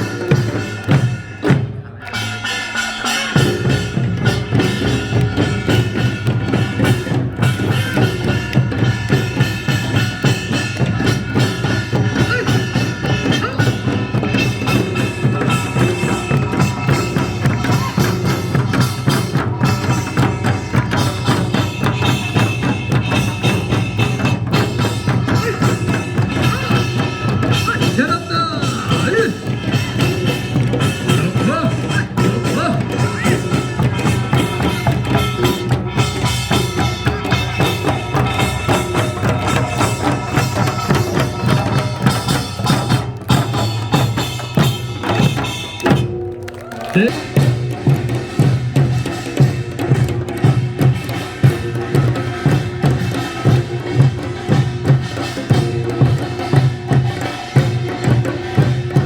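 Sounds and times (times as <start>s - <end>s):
rapid drum strikes: 0.0s - 59.0s
ringing metallic percussion: 0.0s - 59.0s.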